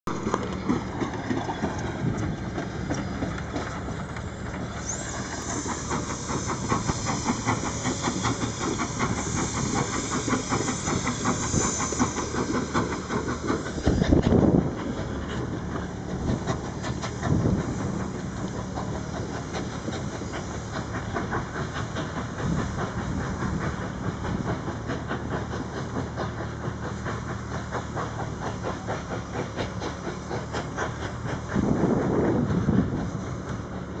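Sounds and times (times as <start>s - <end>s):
train running: 0.1s - 34.0s
steady hiss: 5.1s - 14.1s.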